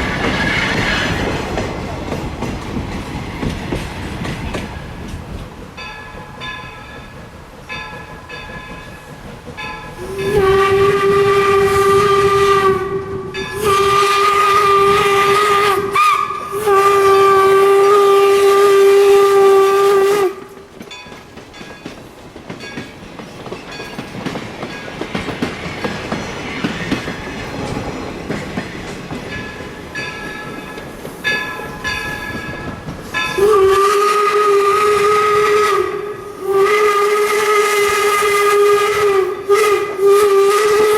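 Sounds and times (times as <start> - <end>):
train running noise: 0.0 - 40.9
steam locomotive whistle blasts: 9.9 - 20.7, 33.2 - 40.9.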